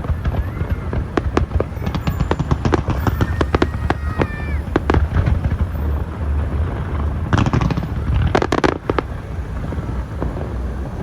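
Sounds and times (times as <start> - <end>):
fireworks crackling bangs: 0.0 - 11.0.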